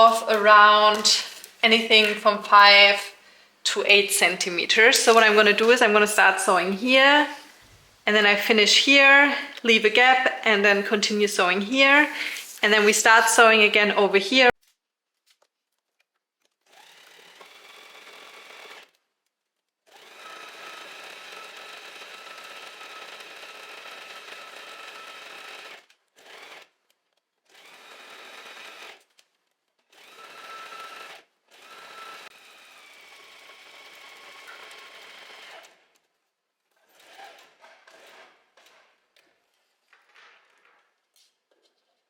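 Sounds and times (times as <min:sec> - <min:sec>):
sewing machine stitching: 0:16.6 - 0:19.0, 0:19.9 - 0:26.7, 0:27.4 - 0:29.2, 0:29.8 - 0:36.0, 0:36.7 - 0:39.5.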